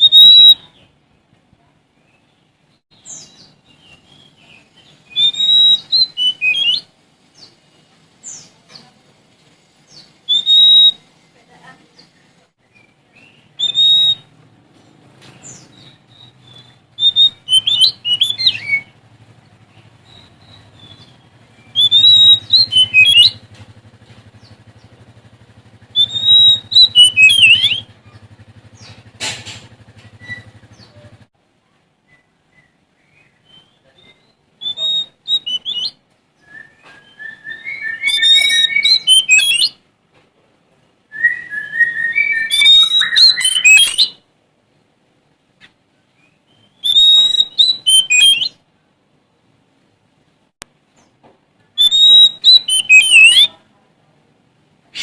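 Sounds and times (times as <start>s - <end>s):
bird singing whistled notes: 0.0s - 0.9s, 2.0s - 8.9s, 9.6s - 11.3s, 12.6s - 14.4s, 15.4s - 23.5s, 25.6s - 29.0s, 30.0s - 31.2s, 32.0s - 39.8s, 41.1s - 44.2s, 46.2s - 48.6s, 51.8s - 53.6s.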